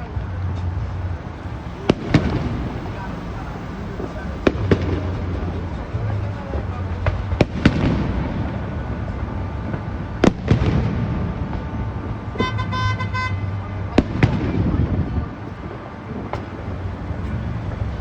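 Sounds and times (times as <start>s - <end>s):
car horn honking: 1.2s - 7.4s, 12.1s - 14.0s, 15.6s - 18.0s
fireworks bangs: 1.2s - 18.0s.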